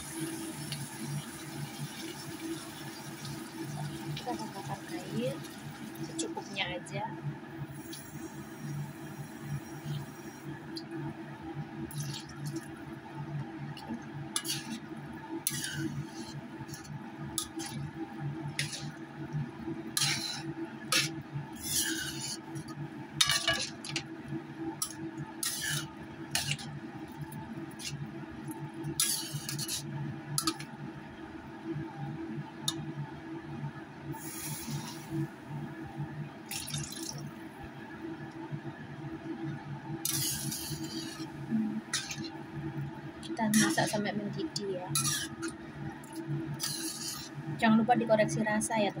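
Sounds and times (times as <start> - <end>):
steady low hum: 0.0 - 49.0
spatula scraping metal wok: 14.4 - 14.8, 15.5 - 17.8, 18.6 - 19.0, 20.0 - 22.6, 25.4 - 26.6, 29.0 - 29.8, 40.0 - 42.3, 43.4 - 45.6, 46.6 - 47.4.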